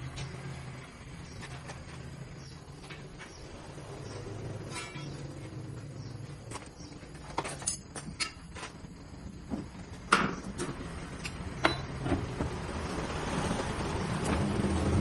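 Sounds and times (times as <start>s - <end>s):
sharp knocks and clatter: 4.6s - 5.4s, 9.5s - 12.7s.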